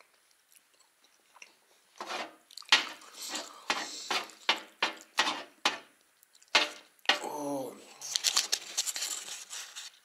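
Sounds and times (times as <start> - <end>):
wet chewing: 0.0 - 5.2, 5.9 - 7.1
lip-smacking: 2.4 - 3.6, 6.0 - 7.1.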